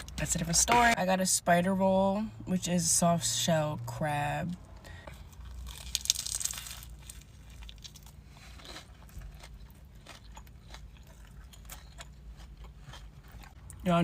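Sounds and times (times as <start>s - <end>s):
chewing crunchy food: 5.1s - 13.9s.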